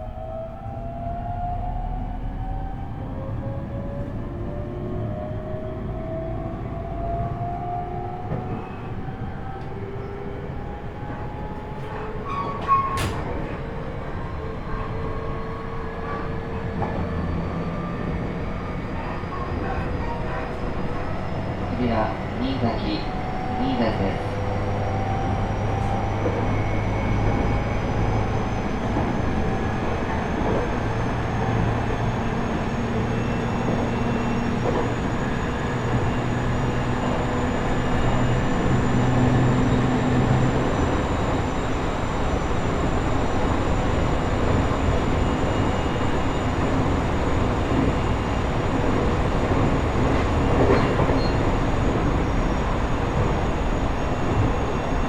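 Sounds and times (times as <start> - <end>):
train wheels rumbling on rail: 1.4 - 55.0.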